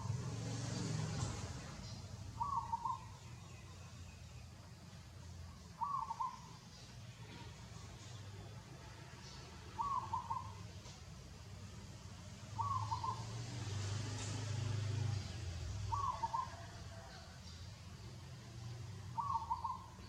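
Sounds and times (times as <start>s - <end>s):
bird wavering call: 2.4s - 3.3s, 5.8s - 6.6s, 9.8s - 10.6s, 12.6s - 13.4s, 15.9s - 16.7s, 19.2s - 20.0s.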